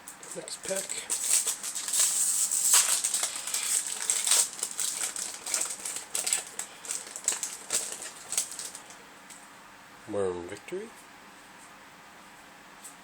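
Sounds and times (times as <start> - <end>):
foil crinkling: 0.1 - 9.4
foil pack ripping open: 0.2 - 9.0.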